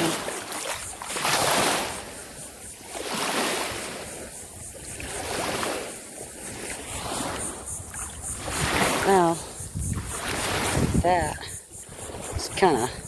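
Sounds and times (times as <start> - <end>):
small waves washing on shore: 0.0 - 13.0
wind on microphone: 0.0 - 13.0.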